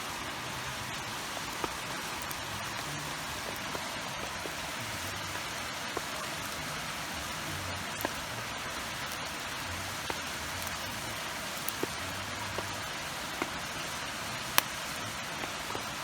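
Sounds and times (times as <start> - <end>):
rain hiss: 0.0 - 16.0.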